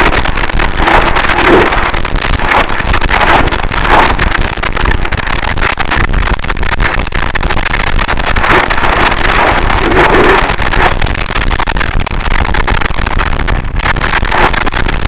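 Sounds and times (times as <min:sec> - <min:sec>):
dense crackling: 0:00.0 - 0:15.0
distorted static noise wall: 0:00.0 - 0:15.0.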